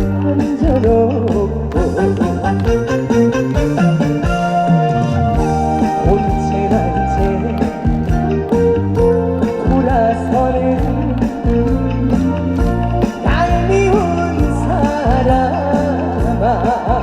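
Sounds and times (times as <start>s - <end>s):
live band playing: 0.0s - 17.0s.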